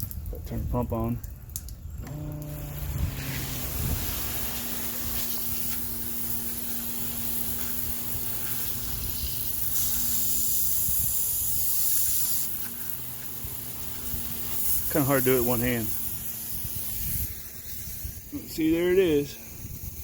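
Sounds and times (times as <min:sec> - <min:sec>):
water spraying from hose: 0:00.0 - 0:20.0
pump motor humming: 0:02.0 - 0:20.0.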